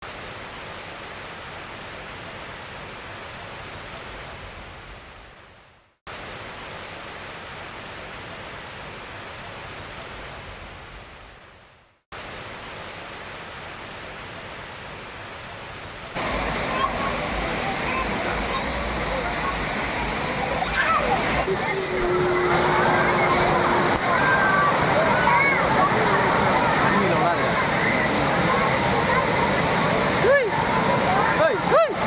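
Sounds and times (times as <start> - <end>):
waterfall rushing: 16.1 - 32.0.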